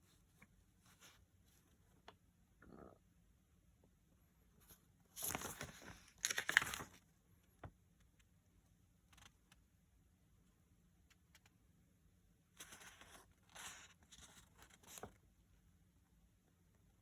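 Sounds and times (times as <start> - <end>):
rustling crinkling handling noise: 4.6 - 7.0.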